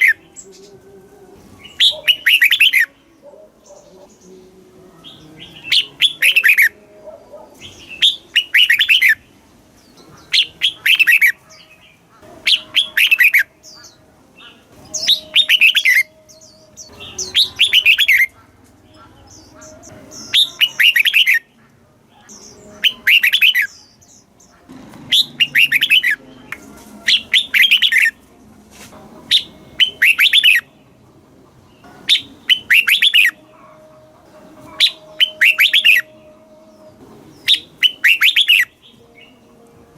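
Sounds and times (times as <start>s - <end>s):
bird singing falling notes: 1.5s - 2.9s, 9.8s - 21.5s, 22.3s - 28.2s, 34.6s - 39.4s.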